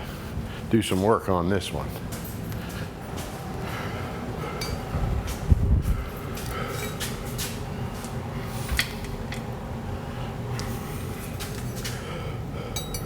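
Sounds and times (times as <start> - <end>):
steady low hum: 0.0 - 13.0
metal tools clinking: 12.8 - 13.0.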